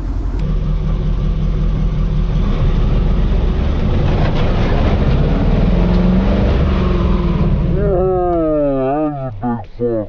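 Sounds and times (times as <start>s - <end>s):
engine rumbling under load: 0.0s - 10.0s.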